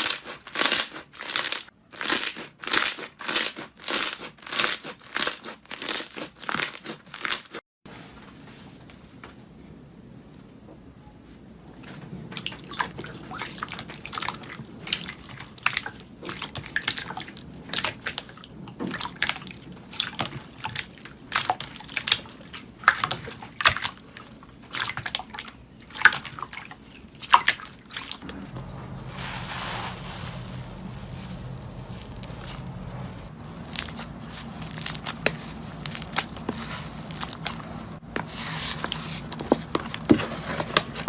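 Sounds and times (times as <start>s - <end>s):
soft rustling: 28.3s - 41.0s.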